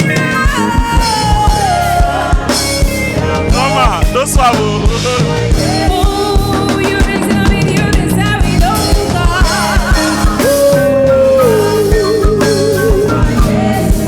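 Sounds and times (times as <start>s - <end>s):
bass: 0.0s - 14.0s
choir singing: 0.0s - 14.0s
drum kit: 0.0s - 14.0s.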